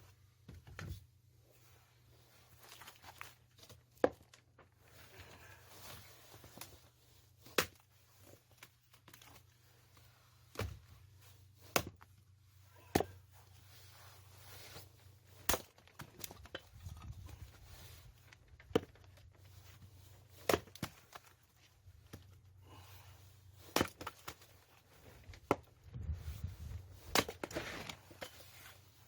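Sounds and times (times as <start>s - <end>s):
axe chopping firewood: 7.4s - 7.9s, 10.5s - 10.8s, 11.7s - 12.1s, 12.8s - 13.4s, 15.4s - 17.2s, 18.6s - 19.0s, 20.3s - 21.3s, 23.6s - 24.5s, 25.3s - 25.7s, 27.0s - 28.4s.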